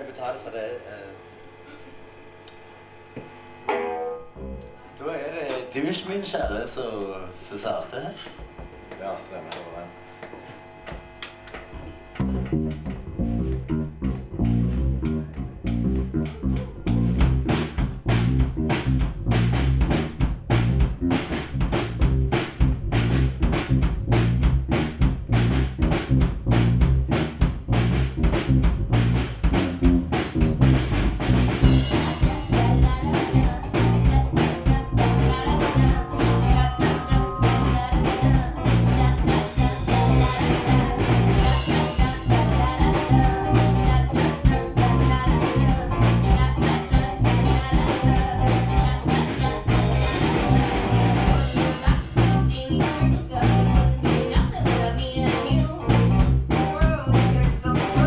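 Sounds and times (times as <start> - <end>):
drum kit beat: 5.4 - 6.8, 12.2 - 58.0
live rock band playing: 12.2 - 58.0.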